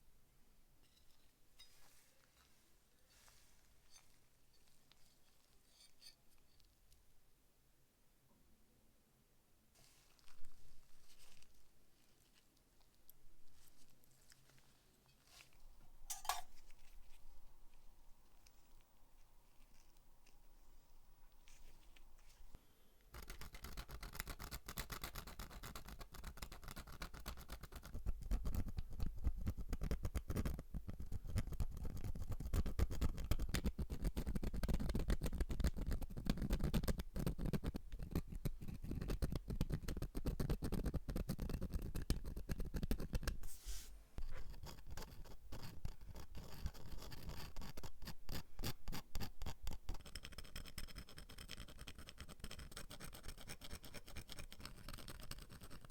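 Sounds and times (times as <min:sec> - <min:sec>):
scrubbing metal lighter part: 0:16.1 - 0:16.5.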